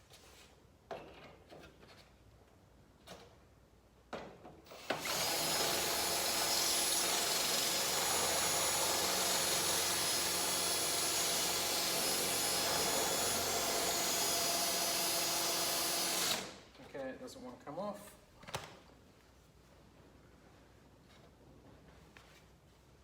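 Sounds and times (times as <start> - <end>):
drill clicks: 4.7 - 16.6
electric drill running: 4.7 - 16.6.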